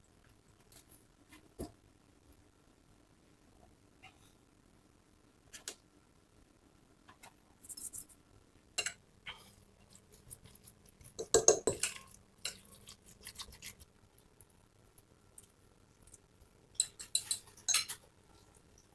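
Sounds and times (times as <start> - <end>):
utensils clinking against dishes: 16.8 - 18.0.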